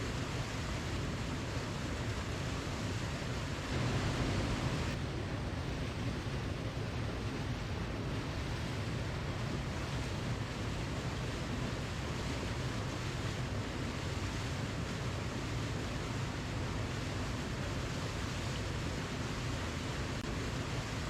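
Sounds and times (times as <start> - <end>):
waterfall rushing: 0.1 - 5.0.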